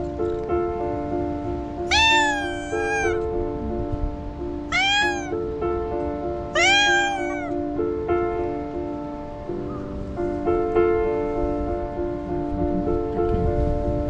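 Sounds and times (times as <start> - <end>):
cat meowing: 1.9 - 3.4, 4.6 - 5.6, 6.4 - 7.8.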